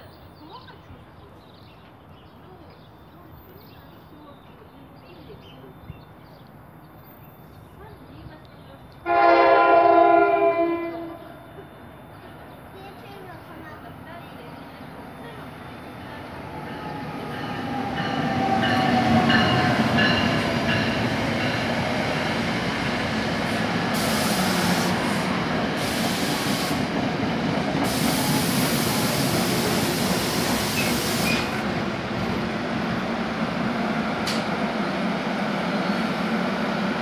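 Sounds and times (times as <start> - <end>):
electric locomotive passing: 6.6 - 37.0
hiss: 23.9 - 25.1, 25.8 - 26.9, 27.8 - 31.6.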